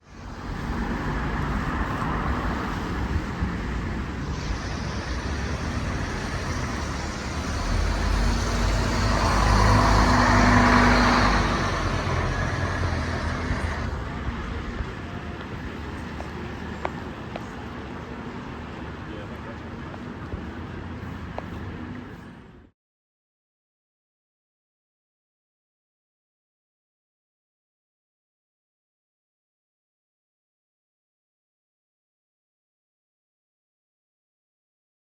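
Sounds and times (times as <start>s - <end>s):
bus engine running: 0.0s - 22.7s.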